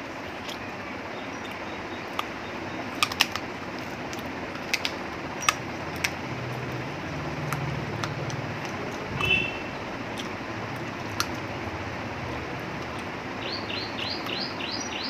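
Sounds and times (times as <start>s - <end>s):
mouth clicks and chewing: 0.3s - 0.7s, 1.3s - 11.6s, 12.6s - 13.2s.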